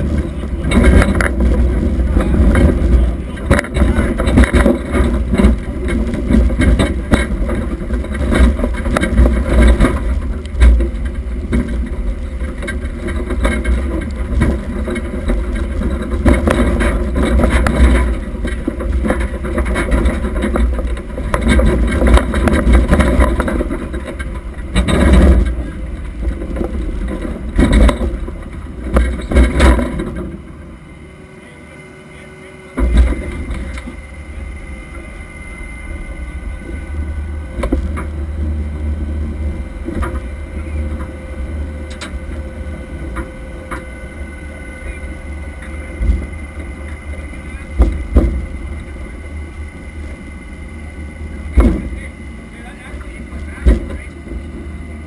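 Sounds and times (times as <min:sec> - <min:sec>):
car engine rumbling: 0:00.0 - 0:55.0.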